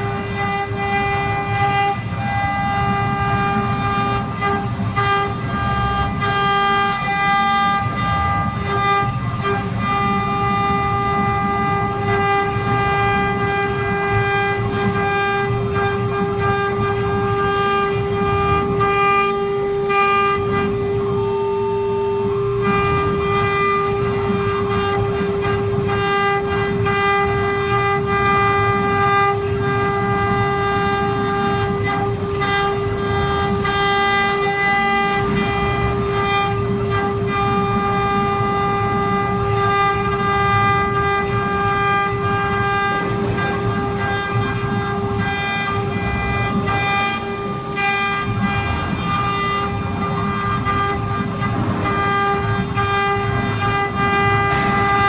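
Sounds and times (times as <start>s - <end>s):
cnc router spindle whine: 0.0s - 55.0s
rough rumble: 40.9s - 46.2s, 48.2s - 55.0s.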